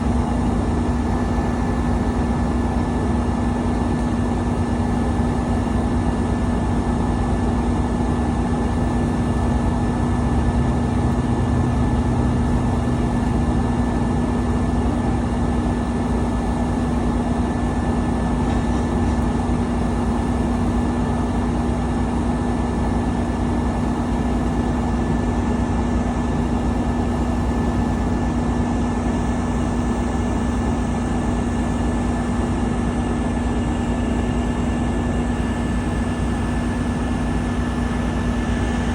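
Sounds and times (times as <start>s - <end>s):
car road and engine noise: 8.7s - 17.1s.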